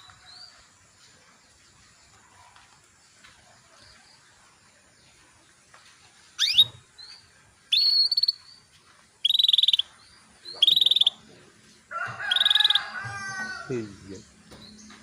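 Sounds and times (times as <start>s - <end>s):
canary chirping and trilling: 6.4s - 8.6s, 9.2s - 11.3s, 12.2s - 13.4s.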